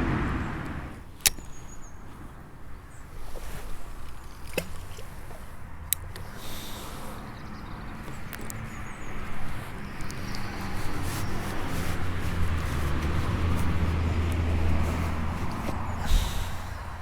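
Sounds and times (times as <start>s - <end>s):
broad rushing noise: 0.0s - 1.1s, 9.4s - 17.0s
passing vehicle engine drone: 0.0s - 1.1s, 6.1s - 17.0s.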